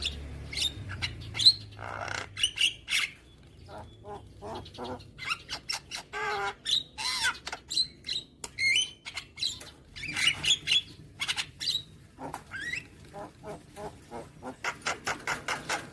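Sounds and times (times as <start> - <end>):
myna calling: 0.0 - 7.5.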